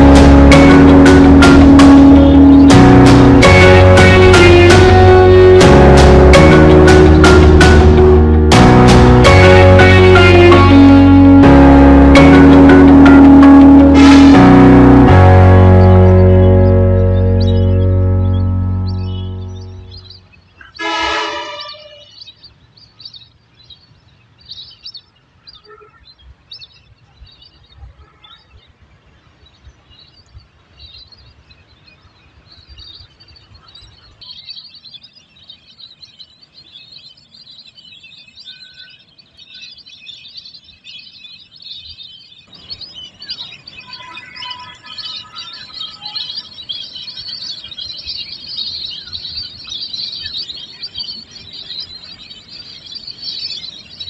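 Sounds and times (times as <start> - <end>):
low rumble: 0.0 - 20.2
flock of birds chirping: 0.0 - 54.0.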